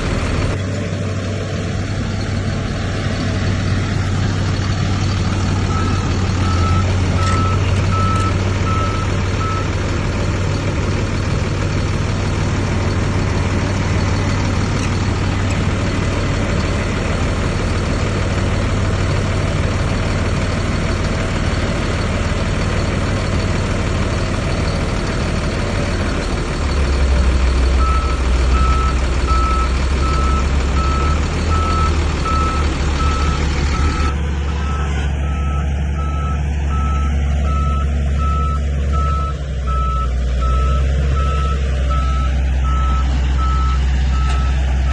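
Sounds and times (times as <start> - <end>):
heavy diesel engine running: 0.0 - 44.9
reverse alarm beeping: 5.7 - 9.8, 27.8 - 44.6.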